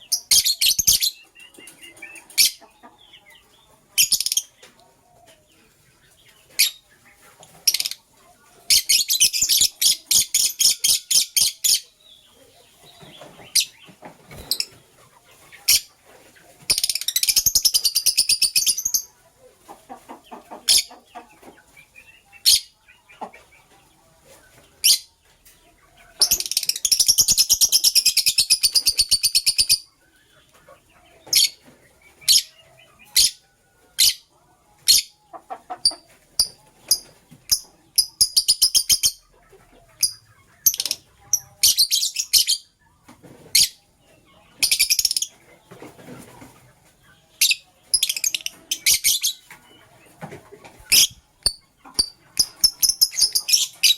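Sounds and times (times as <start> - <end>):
lovebirds chirping: 0.0 - 53.9
low-pitched rapid bird chatter: 19.9 - 23.9, 24.8 - 33.4, 34.9 - 53.9.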